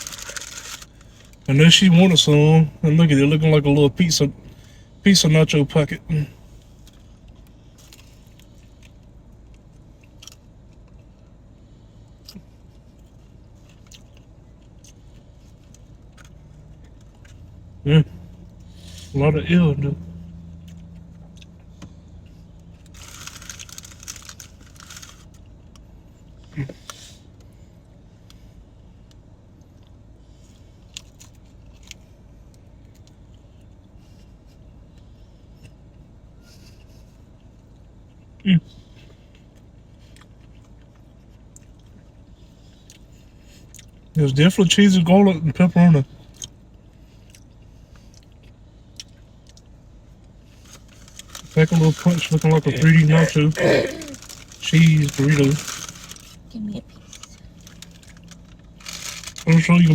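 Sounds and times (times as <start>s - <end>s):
low steady hum: 0.0s - 59.9s
person chewing: 46.3s - 49.8s, 55.4s - 59.5s
car engine idling: 48.8s - 59.9s.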